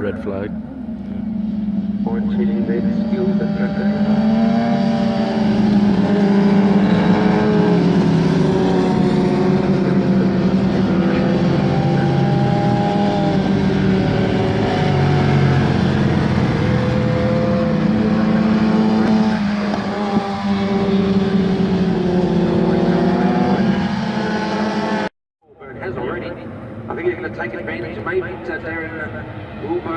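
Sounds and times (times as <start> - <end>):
motorbike engines revving: 0.0 - 25.1.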